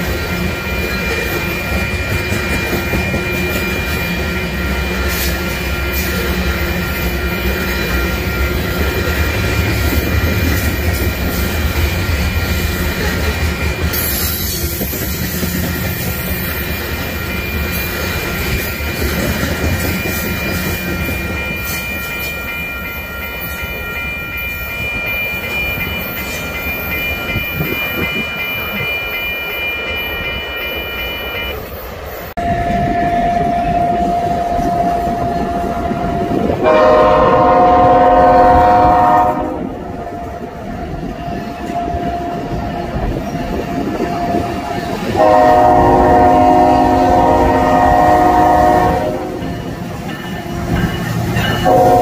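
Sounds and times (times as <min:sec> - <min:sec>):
high squeal from train wheels: 0:00.0 - 0:39.2, 0:40.0 - 0:52.0
train rolling by rumbling: 0:00.0 - 0:52.0
diesel locomotive horn: 0:32.4 - 0:40.6, 0:43.8 - 0:49.6, 0:51.6 - 0:52.0.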